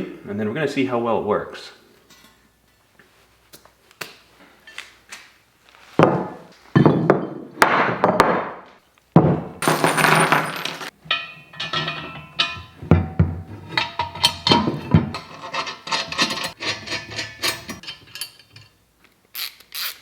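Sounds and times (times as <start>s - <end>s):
metal parts clinking: 9.6s - 12.8s, 13.6s - 18.8s
ringing metal clink: 9.8s - 13.2s
metal scraping: 11.0s - 18.7s.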